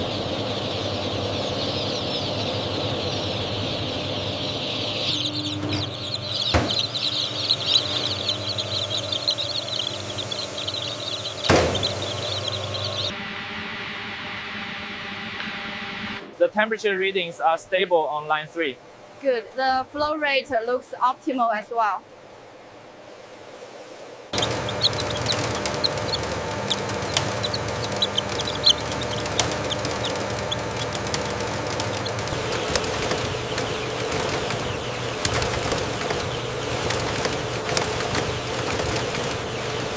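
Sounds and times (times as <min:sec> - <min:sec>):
chicks peeping: 0:00.0 - 0:13.1, 0:24.3 - 0:39.9
steady low hum: 0:00.0 - 0:20.1, 0:24.2 - 0:39.9
sharp knocks: 0:05.2 - 0:13.1, 0:24.4 - 0:39.9.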